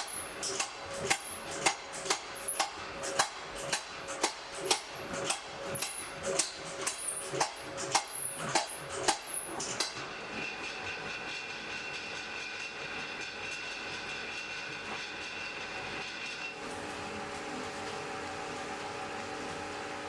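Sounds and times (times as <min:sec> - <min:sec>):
hammer striking iron on anvil: 0:00.0 - 0:10.0.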